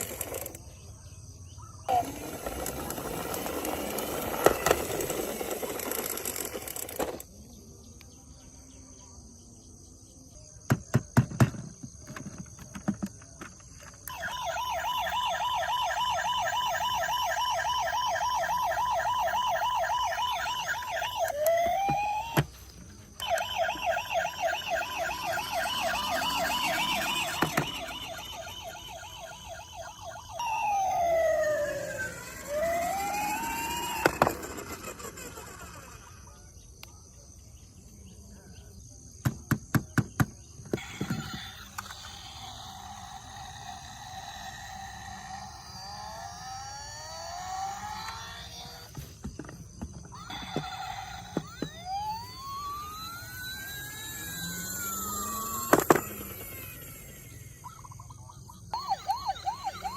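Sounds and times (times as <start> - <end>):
toy siren warbling: 0.0 - 0.6, 1.9 - 7.2, 12.2 - 36.4, 40.7 - 59.9
unclear noise: 12.0 - 37.0.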